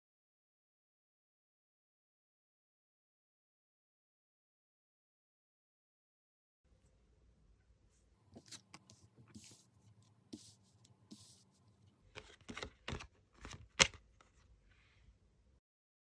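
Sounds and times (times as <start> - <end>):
cards swishing and sliding: 8.4 - 11.6, 12.2 - 14.4
card snaps and taps: 12.2 - 14.0.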